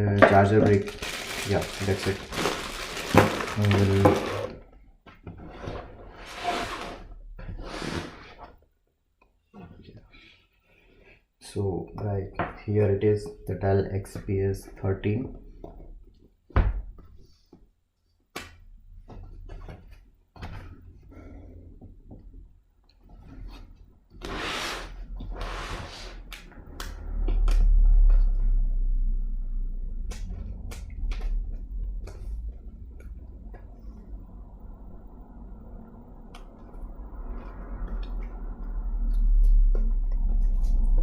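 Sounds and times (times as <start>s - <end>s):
clicks and knocks of packaging: 0.2s - 4.5s
packaging rustling: 0.3s - 4.6s
low rumble of handling noise: 26.4s - 41.0s.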